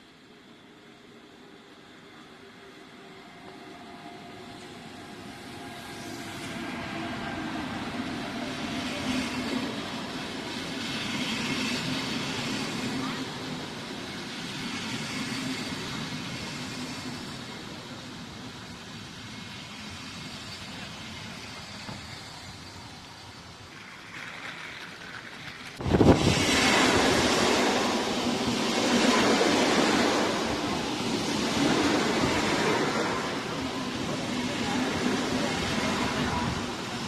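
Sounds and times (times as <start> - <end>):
passenger train rumbling: 0.0 - 37.0
loud rushing noise: 25.8 - 34.0.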